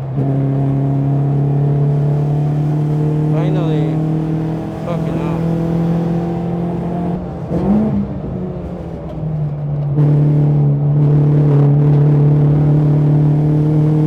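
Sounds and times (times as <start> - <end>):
race car engine revving: 0.0 - 14.0.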